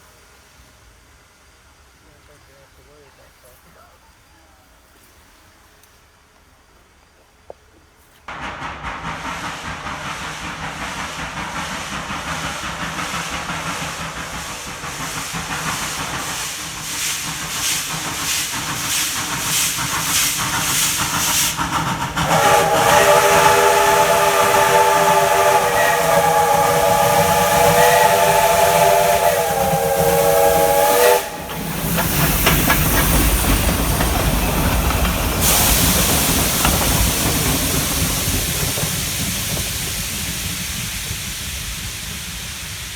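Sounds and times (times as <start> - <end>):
steam hissing: 8.3 - 42.9
steam locomotive chuffing: 8.3 - 42.9
steam whistle blast: 22.2 - 32.0.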